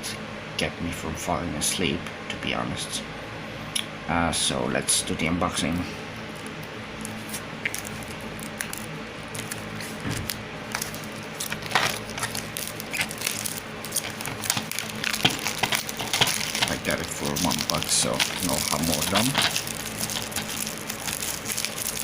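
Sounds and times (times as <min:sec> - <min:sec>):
plastic case crinkling and clicking: 0:07.6 - 0:22.0.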